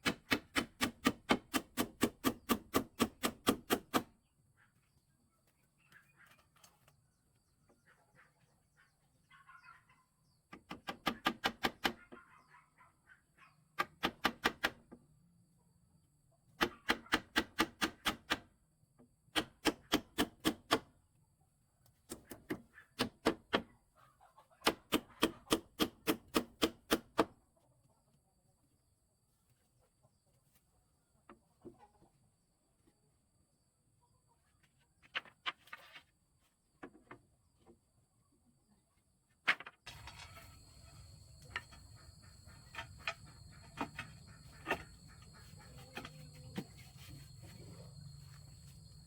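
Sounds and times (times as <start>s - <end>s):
hand tool striking wood: 0.0s - 4.1s, 42.6s - 47.2s.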